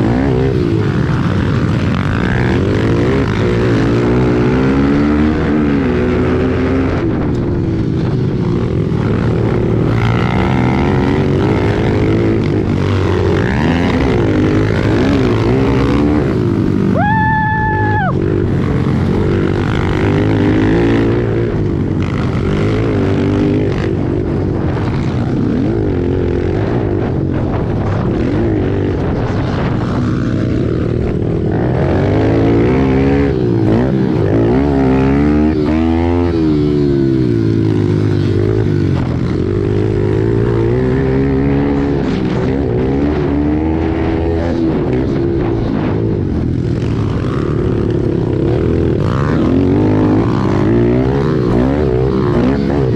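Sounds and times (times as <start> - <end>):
small motorcycle engines revving: 0.0 - 52.9.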